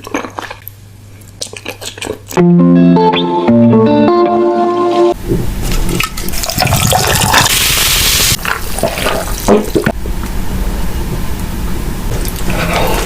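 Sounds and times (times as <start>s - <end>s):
crunchy eating sounds: 0.0s - 2.4s, 12.1s - 13.0s.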